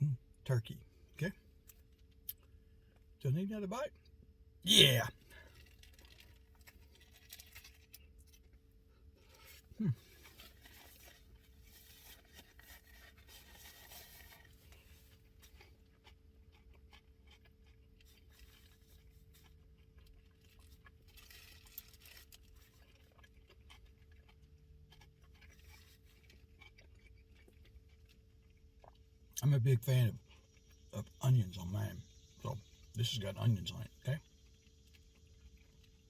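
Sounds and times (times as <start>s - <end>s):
faint steady hum: 0.0s - 36.0s
faint chewing and mouth sounds: 0.2s - 3.2s, 3.9s - 36.0s.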